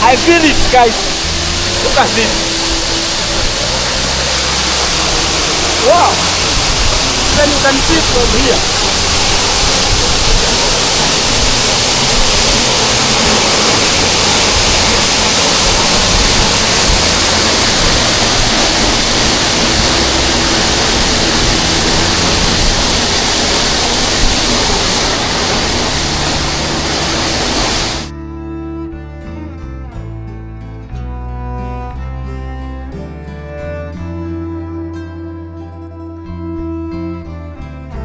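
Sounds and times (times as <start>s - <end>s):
waterfall rushing: 0.0s - 28.1s
music: 0.0s - 38.0s.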